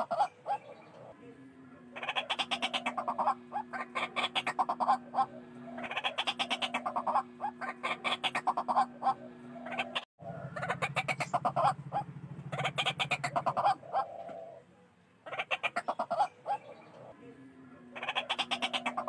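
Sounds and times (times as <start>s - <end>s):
waterhen calling: 2.0s - 14.7s, 15.3s - 17.2s, 18.0s - 19.0s
low hum: 3.0s - 13.0s
low pulsing drone: 4.8s - 13.0s.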